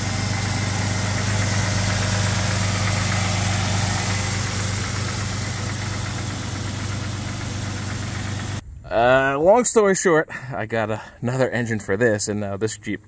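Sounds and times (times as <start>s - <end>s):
car engine idling: 0.0s - 8.8s.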